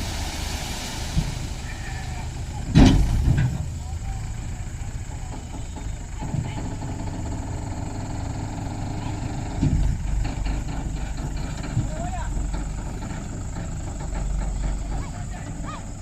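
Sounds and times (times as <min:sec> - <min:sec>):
tractor diesel engine running: 0:00.0 - 0:16.0
brief thump: 0:02.7 - 0:03.6.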